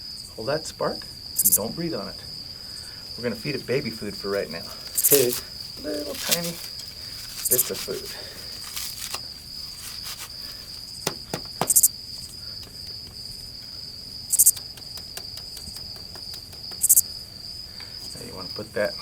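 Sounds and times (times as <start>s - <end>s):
high buzzy insect chirp: 0.0s - 19.0s
insects trilling: 0.0s - 19.0s
small clicks: 14.3s - 17.0s.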